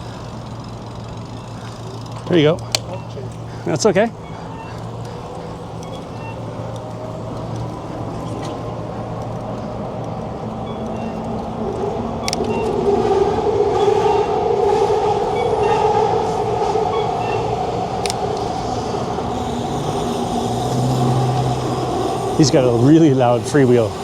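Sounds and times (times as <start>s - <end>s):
passing motor vehicle hum: 0.0s - 24.0s
sharp clicks: 2.1s - 3.5s, 4.7s - 15.7s, 16.6s - 22.1s.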